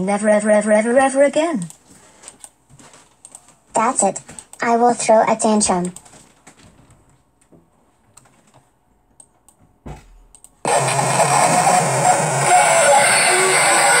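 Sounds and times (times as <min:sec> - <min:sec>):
computer mouse clicks: 0:01.6 - 0:02.6, 0:03.2 - 0:03.5, 0:10.3 - 0:10.6
short thump: 0:09.8 - 0:10.3.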